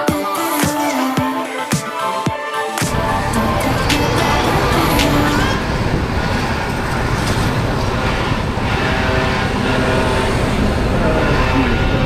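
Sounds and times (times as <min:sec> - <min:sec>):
motorcycle engine: 0:02.9 - 0:12.0
road noise: 0:02.9 - 0:12.0.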